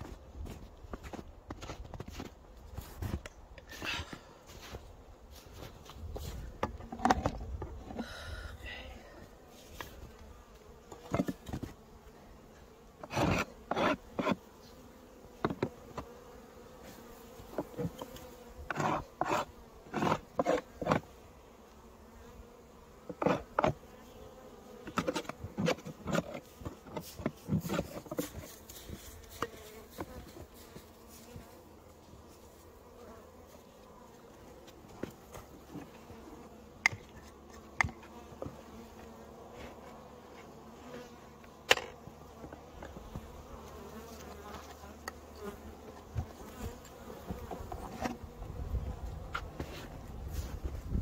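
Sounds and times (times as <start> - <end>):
bees buzzing: 5.5 - 51.0
scrapes and knocks: 24.9 - 28.6.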